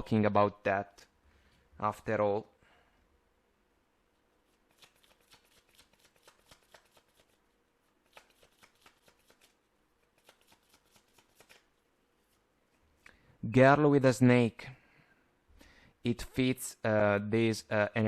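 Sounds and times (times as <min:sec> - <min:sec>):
cards being shuffled: 0:04.5 - 0:07.4, 0:08.0 - 0:12.4.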